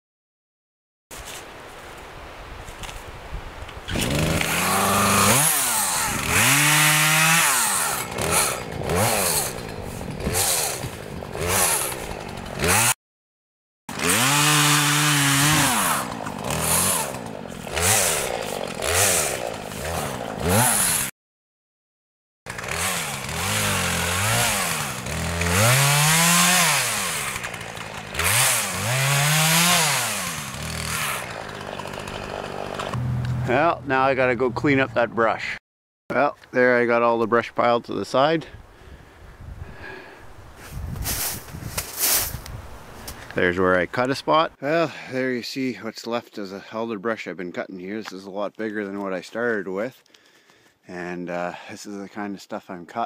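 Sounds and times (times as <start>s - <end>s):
chainsaw cutting brush: 3.9s - 13.0s, 13.9s - 21.1s, 22.5s - 33.5s, 39.9s - 43.3s.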